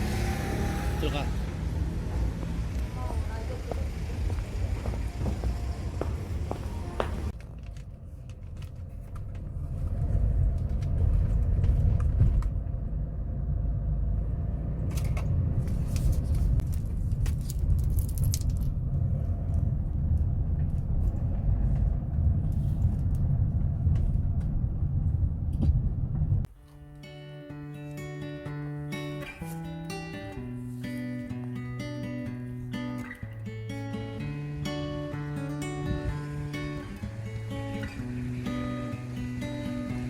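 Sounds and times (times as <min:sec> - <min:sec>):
car driving rumble from cabin: 0:00.0 - 0:07.4.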